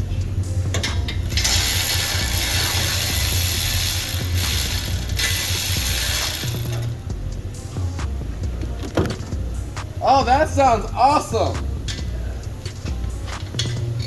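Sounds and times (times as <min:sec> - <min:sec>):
low engine rumble: 0:00.0 - 0:14.0
tool clicks: 0:00.8 - 0:06.9
pneumatic ratchet tool bursts: 0:01.2 - 0:07.0.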